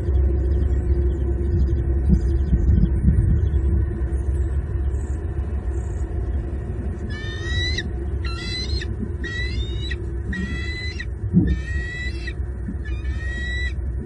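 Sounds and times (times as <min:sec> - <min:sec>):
steady low rumble: 0:00.0 - 0:14.0
eagle calling: 0:07.0 - 0:14.0.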